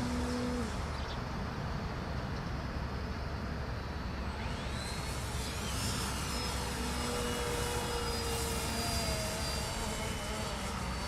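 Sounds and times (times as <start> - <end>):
model plane motor whining: 0.0 - 0.9, 4.2 - 11.0.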